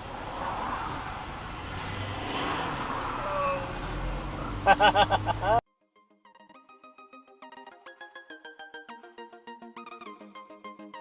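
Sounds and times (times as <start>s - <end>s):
car road and engine noise: 0.0s - 5.6s.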